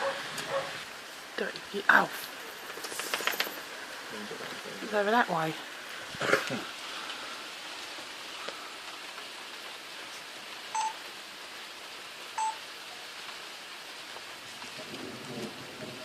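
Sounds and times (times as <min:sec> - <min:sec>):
steady rain falling: 0:00.0 - 0:16.0
short electronic beeps: 0:10.8 - 0:11.0, 0:12.4 - 0:12.6.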